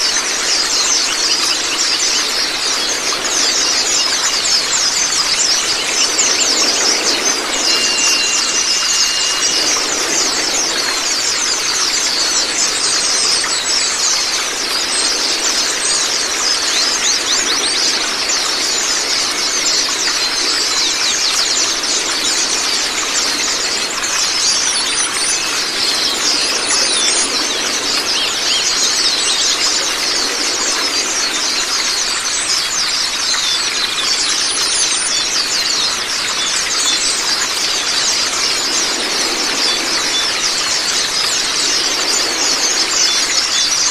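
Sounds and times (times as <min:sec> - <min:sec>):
birds twittering chirps: 0:00.0 - 0:43.9
running water rushing: 0:00.0 - 0:43.9
high whistle: 0:07.6 - 0:10.2.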